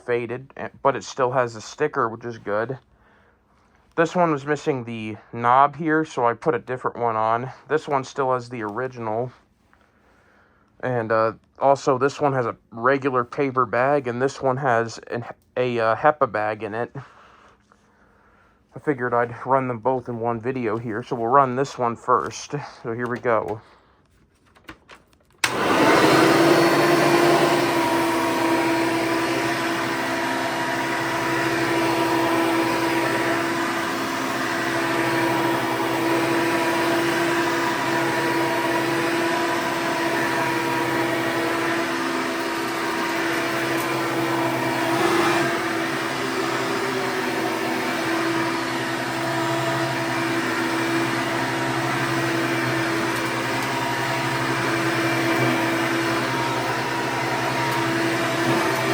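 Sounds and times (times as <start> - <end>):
upright vacuum cleaner running: 25.4 - 58.9.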